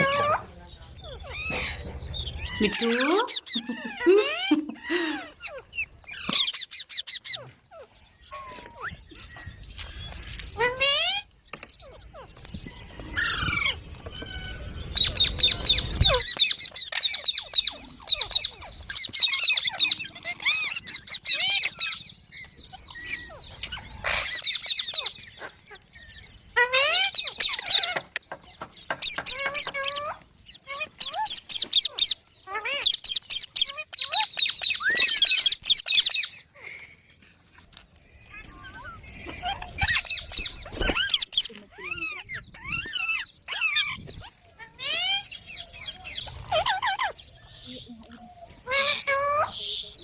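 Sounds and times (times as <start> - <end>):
parrot chattering calls: 0.0 - 9.0, 38.3 - 47.2.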